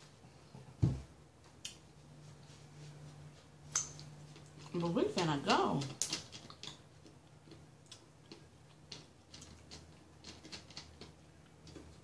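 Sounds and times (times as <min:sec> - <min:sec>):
low steady hum: 0:00.0 - 0:12.0
chewing clicks: 0:05.8 - 0:12.0.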